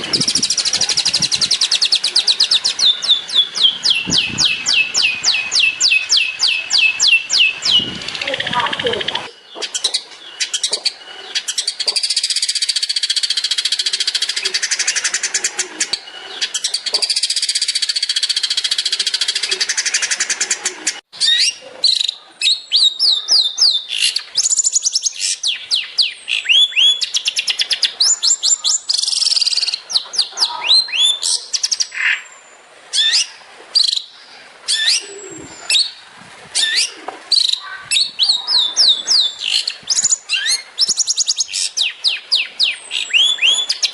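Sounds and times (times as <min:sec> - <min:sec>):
falling whistled bird notes: 0:00.0 - 0:09.3.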